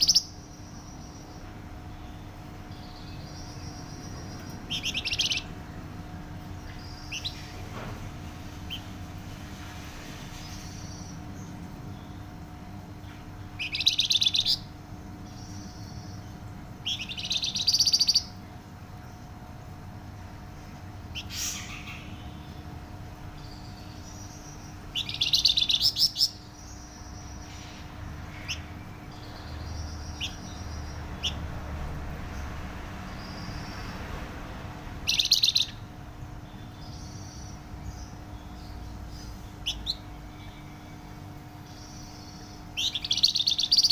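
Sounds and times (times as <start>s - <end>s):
soft bird chirps: 0.0s - 19.3s, 20.5s - 31.6s, 35.0s - 43.9s
low electrical hum: 0.0s - 43.9s
songbird singing: 0.0s - 43.9s.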